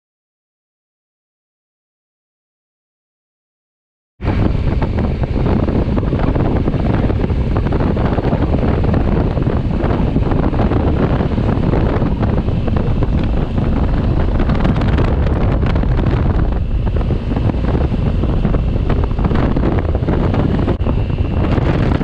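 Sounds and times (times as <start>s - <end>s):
motorcycle engine drone: 4.2s - 22.0s
wind buffeting microphone: 4.2s - 22.0s.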